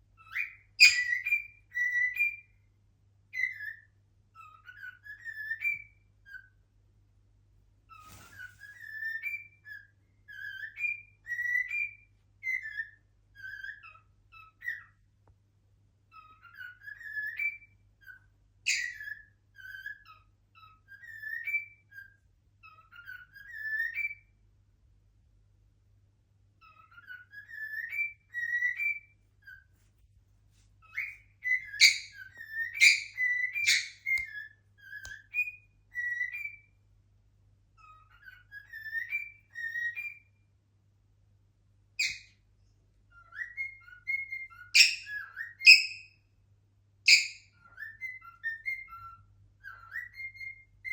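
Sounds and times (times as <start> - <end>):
cockatiel whistling: 0.2 - 2.5, 3.3 - 6.6, 7.9 - 14.9, 16.1 - 24.3, 26.6 - 29.6, 30.8 - 36.7, 37.8 - 40.2, 42.0 - 42.3, 43.1 - 46.2, 47.1 - 50.9.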